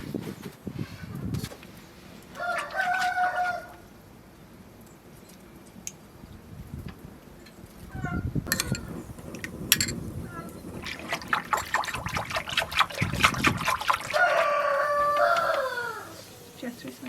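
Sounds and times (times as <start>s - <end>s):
rooster crowing: 2.4s - 3.9s, 14.0s - 16.5s.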